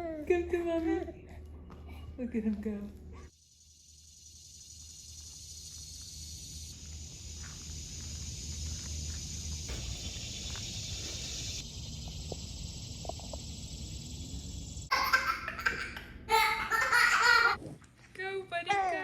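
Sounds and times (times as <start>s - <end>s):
steady hiss: 3.4s - 14.9s.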